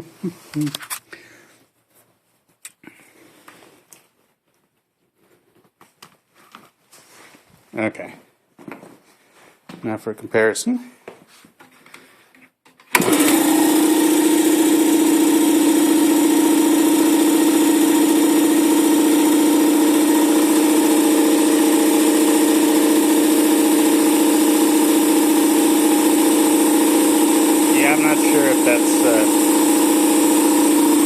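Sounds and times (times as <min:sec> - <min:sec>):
air compressor running: 0:13.0 - 0:31.0.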